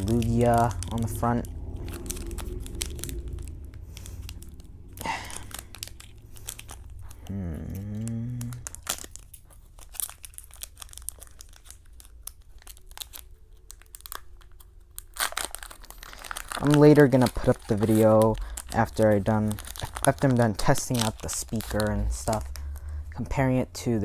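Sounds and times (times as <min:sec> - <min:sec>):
person humming: 0:00.0 - 0:06.0, 0:07.0 - 0:08.9
foil wrapper tearing and crinkling: 0:00.0 - 0:23.5.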